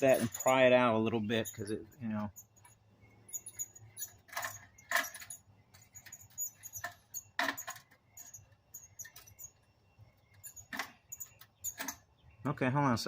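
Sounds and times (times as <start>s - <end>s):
screwdriver clicking and scraping metal: 0.0s - 0.7s, 3.3s - 9.6s.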